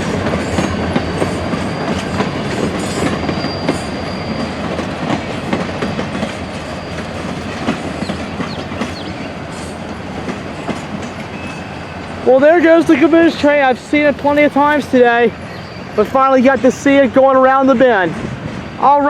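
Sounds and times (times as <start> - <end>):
wheels clicking over rail joints: 0.0 - 15.4
train wheels rumbling: 0.0 - 19.0
faint high wheel squeal: 0.4 - 9.9, 10.6 - 16.1.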